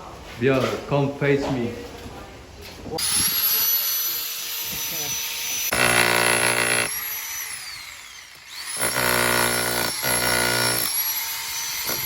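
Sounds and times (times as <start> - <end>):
jackhammer hammering: 5.6 - 12.0
jackhammer motor whine: 5.7 - 6.9, 7.5 - 10.9.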